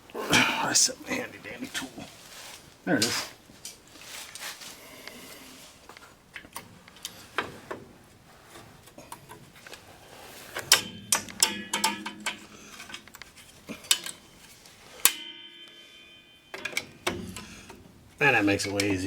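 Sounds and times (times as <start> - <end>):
metal tool clinking on springs: 10.6 - 17.8.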